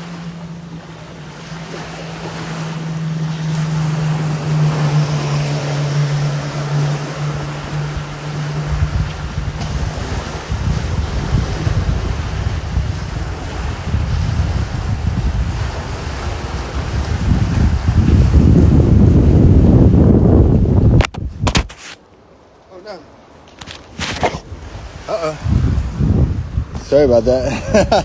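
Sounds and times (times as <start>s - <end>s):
wind buffeting microphone: 0.0s - 21.8s, 23.4s - 28.0s
ocean surf: 0.0s - 28.0s.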